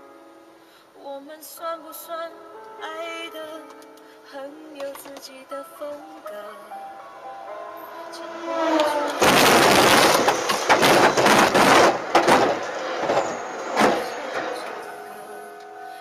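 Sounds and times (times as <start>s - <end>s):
passenger train passing: 6.8s - 16.0s
carriages clattering: 7.6s - 16.0s.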